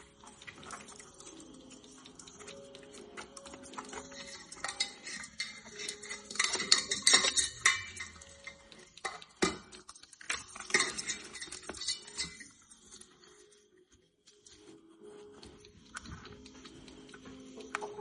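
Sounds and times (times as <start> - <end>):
clicking and scraping on metal pot: 0.0 - 13.5.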